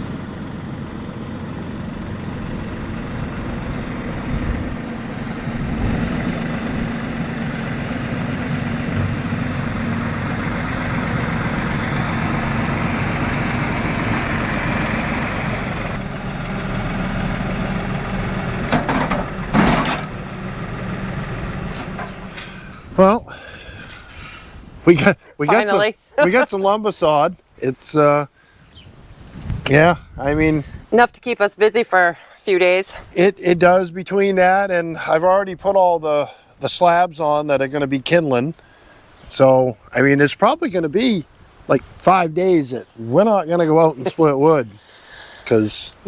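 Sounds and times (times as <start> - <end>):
engine running: 0.0 - 24.6.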